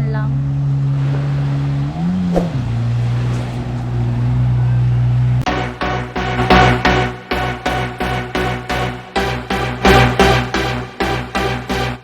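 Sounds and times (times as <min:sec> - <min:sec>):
music with a beat: 0:05.4 - 0:12.0.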